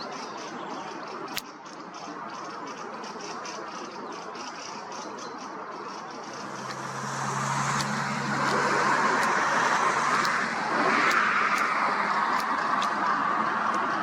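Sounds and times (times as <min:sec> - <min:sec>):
outdoor background noise: 0:00.0 - 0:14.0
vehicle engine hum: 0:05.6 - 0:14.0.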